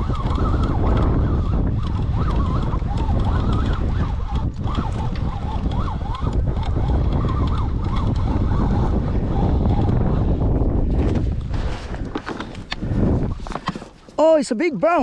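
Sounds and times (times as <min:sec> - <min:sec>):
wavering whistle-like tone: 0:00.0 - 0:09.9
wind buffeting microphone: 0:00.0 - 0:15.0.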